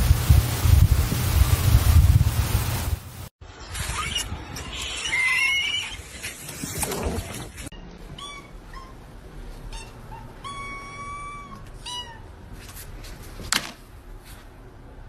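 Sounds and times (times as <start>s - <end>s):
cat meowing: 9.7s - 12.3s.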